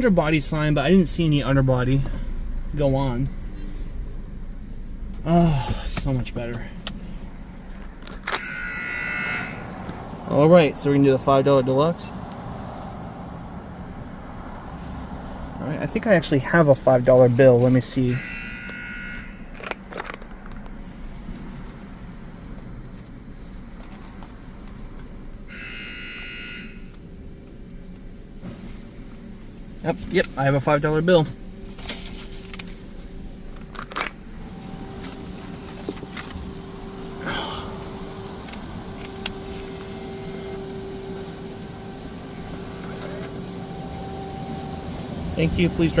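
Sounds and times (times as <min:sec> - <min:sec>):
low idling rumble: 0:00.0 - 0:08.8, 0:26.8 - 0:46.0
electronic buzzer: 0:08.4 - 0:09.8, 0:18.2 - 0:19.4, 0:25.5 - 0:26.9.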